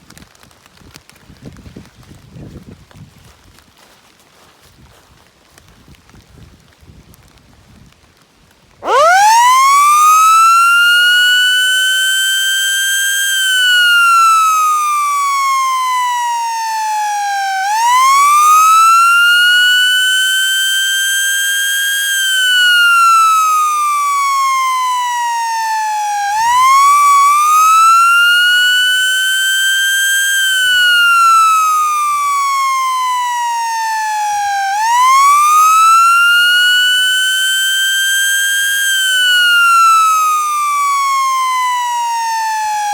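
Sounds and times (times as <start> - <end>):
siren slow wail: 8.8 - 42.9.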